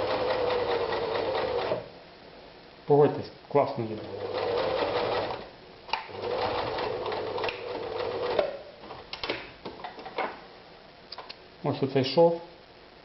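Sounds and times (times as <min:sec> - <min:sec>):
sewing machine stitching leather: 0:00.0 - 0:01.9, 0:04.0 - 0:09.0.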